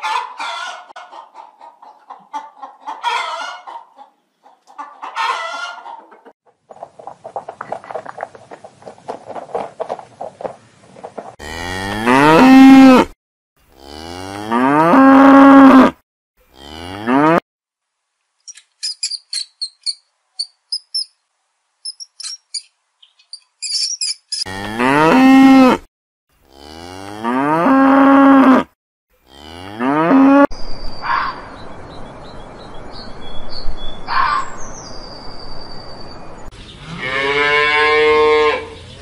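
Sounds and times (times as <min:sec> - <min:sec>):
cattle mooing: 0:11.4 - 0:13.1, 0:13.8 - 0:17.4, 0:24.5 - 0:25.8, 0:26.5 - 0:28.7, 0:29.3 - 0:30.5, 0:36.9 - 0:38.7
short high clicks and squeaks: 0:18.4 - 0:21.1, 0:21.9 - 0:24.5
short rising calls: 0:21.9 - 0:24.4.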